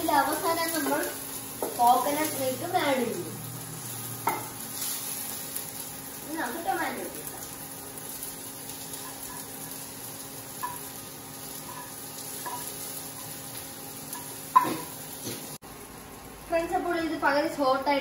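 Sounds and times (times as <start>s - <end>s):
vegetables sizzling in frying pan: 0.0s - 18.0s
spatula stirring: 8.1s - 14.8s.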